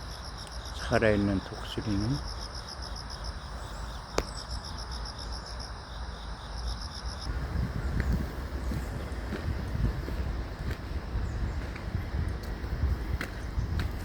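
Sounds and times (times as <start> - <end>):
insects chirping: 0.0 - 14.0
low rumbling background: 7.3 - 14.0
wind buffeting microphone: 7.3 - 14.0.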